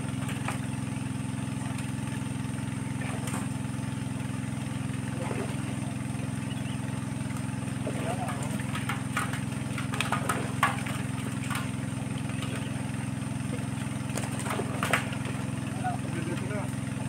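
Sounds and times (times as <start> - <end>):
engine idling: 0.0 - 17.0
faint voices: 7.8 - 8.7.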